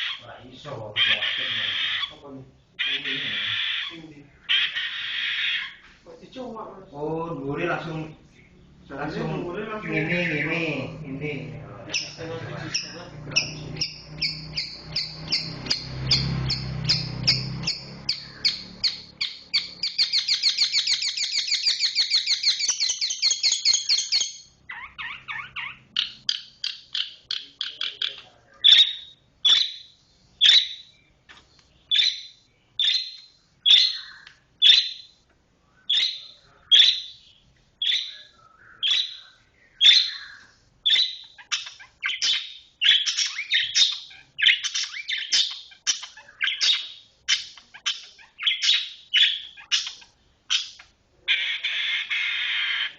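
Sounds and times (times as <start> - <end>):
shrike singing: 7.5 - 31.1.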